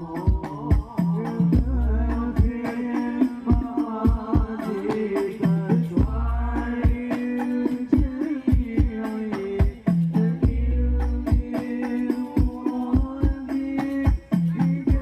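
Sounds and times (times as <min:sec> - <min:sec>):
deep bass drum booms: 0:00.0 - 0:02.6, 0:05.8 - 0:07.1, 0:09.6 - 0:11.5
frame drums fast rhythm: 0:00.0 - 0:15.0
wordless singing: 0:00.0 - 0:15.0.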